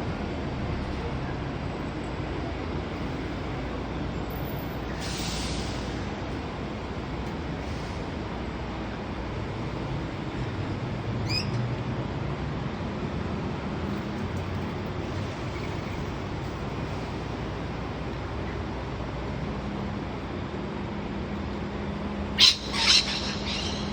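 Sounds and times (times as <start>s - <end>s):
background rumble and hiss: 0.0s - 23.9s
lorikeet chirp: 11.2s - 11.6s, 22.4s - 23.9s.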